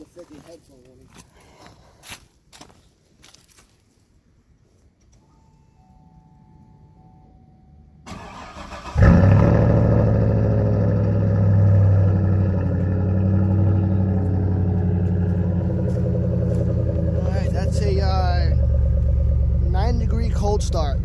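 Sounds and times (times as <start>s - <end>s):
engine cranking on starter: 8.1s - 14.2s
engine fast idle: 8.1s - 21.0s.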